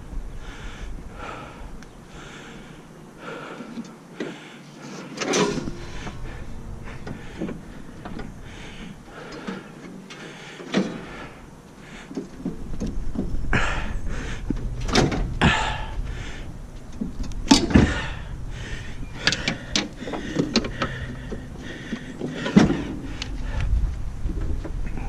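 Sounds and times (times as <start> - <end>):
low steady rumble: 0.0 - 4.2, 5.4 - 25.0
irregular knocks and clunks: 5.2 - 13.8, 14.4 - 16.1, 16.8 - 18.3, 19.2 - 23.5.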